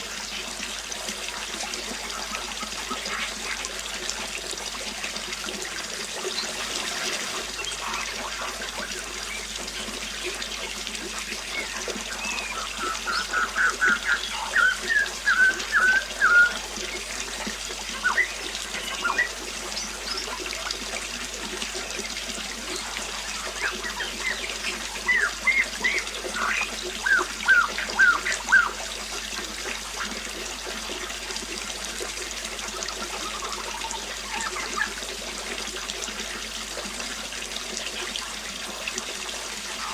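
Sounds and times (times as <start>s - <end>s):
water trickling: 0.0s - 39.9s
bird singing repeated notes: 11.5s - 17.0s, 18.0s - 20.3s, 23.2s - 28.8s.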